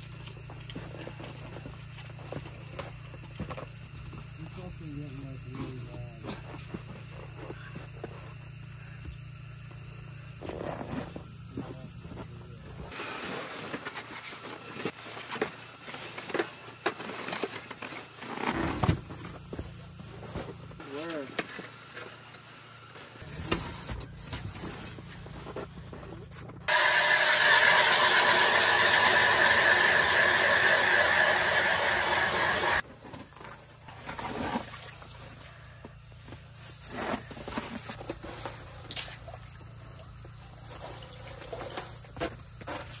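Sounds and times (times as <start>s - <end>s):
rustling and handling noises: 12.9s - 26.7s
loud hiss of rushing gas: 26.7s - 32.8s.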